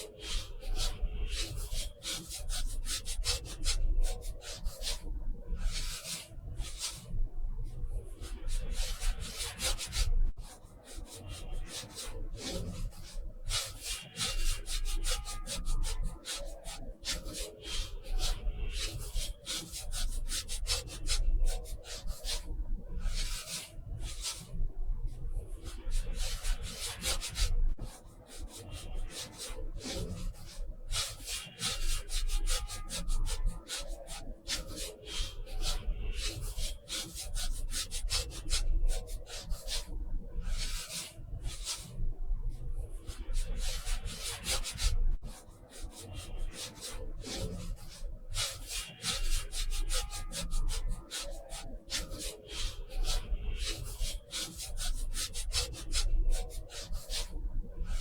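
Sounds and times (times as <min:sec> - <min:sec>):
scratchy strokes on paper: 0:00.0 - 0:58.0.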